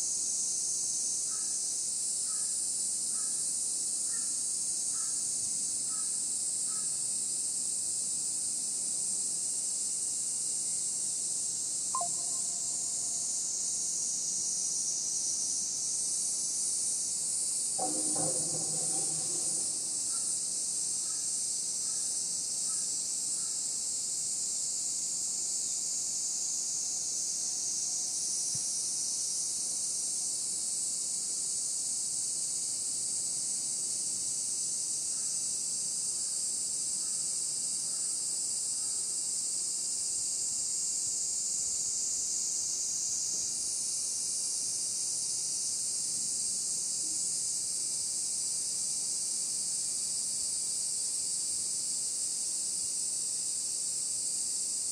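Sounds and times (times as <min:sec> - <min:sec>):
faint short chirps: 0:12.0 - 0:13.2.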